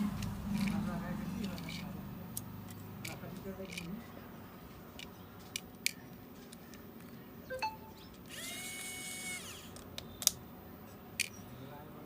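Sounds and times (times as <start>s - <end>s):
small tools clicking and tapping: 0.2s - 0.8s, 1.4s - 4.0s, 4.9s - 7.1s, 11.2s - 11.4s
small electric motor whining: 8.3s - 9.8s.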